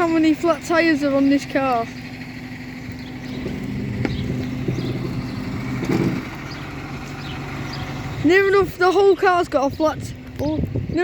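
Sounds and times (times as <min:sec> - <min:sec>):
truck engine humming: 0:00.0 - 0:11.0.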